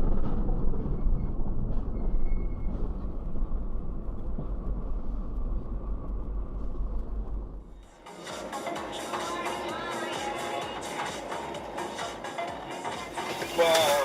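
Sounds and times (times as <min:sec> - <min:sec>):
car driving low rumble: 0:00.0 - 0:08.0.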